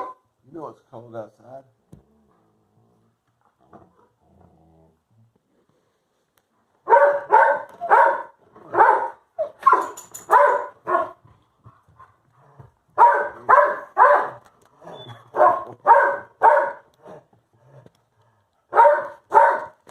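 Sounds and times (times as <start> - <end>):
dog barking: 0.0 - 0.2, 6.8 - 11.2, 13.0 - 14.4, 15.3 - 16.9, 18.7 - 19.8.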